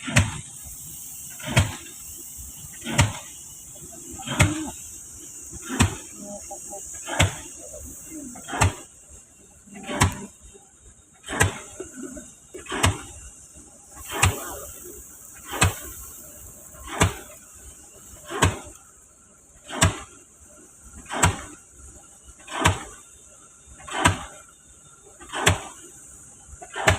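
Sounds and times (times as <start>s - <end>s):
high hiss: 0.0s - 26.9s
pile-driving hammer blows: 1.3s - 8.9s, 9.8s - 10.4s, 11.2s - 13.2s, 14.0s - 16.2s, 16.8s - 17.4s, 18.2s - 18.8s, 19.6s - 20.2s, 21.0s - 21.6s, 22.4s - 23.0s, 23.8s - 24.5s, 25.2s - 25.9s.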